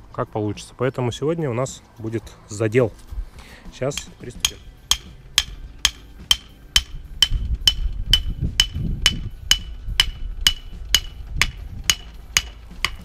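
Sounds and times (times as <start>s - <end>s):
hammer blows with metallic ring: 3.9s - 13.0s.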